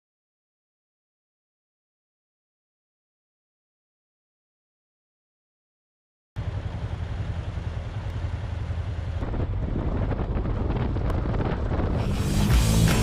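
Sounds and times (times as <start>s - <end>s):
motorcycle engine rumble: 6.4s - 13.0s
wind noise on microphone: 9.2s - 13.0s.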